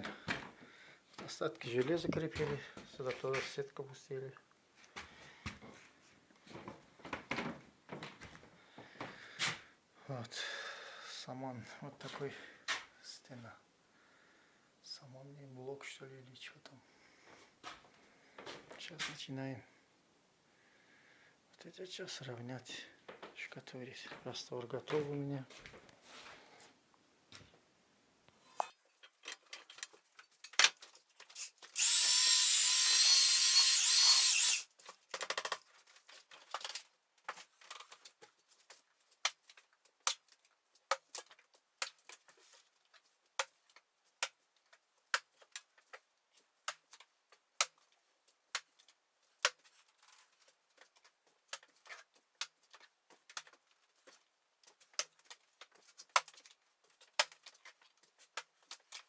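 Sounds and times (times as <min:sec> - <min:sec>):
electric drill running: 0:31.4 - 0:34.7.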